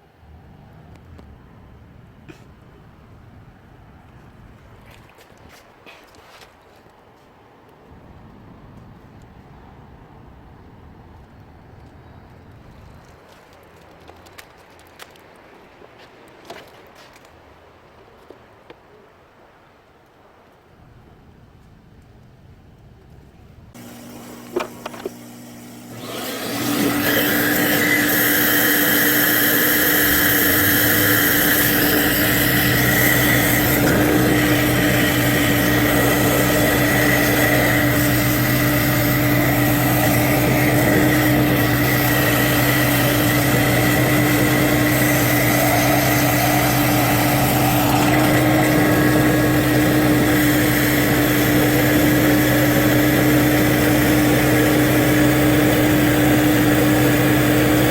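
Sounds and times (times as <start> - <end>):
motor running steadily: 23.8 - 57.9.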